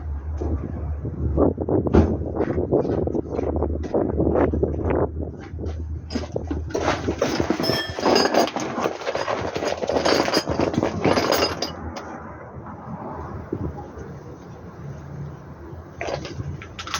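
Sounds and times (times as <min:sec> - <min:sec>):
metal tools clanking: 0:06.1 - 0:12.1.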